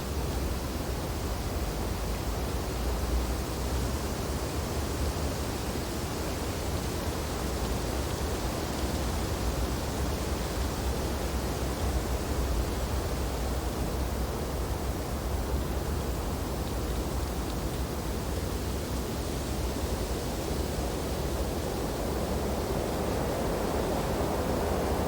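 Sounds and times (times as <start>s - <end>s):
wind blowing through tree branches: 6.4s - 25.0s.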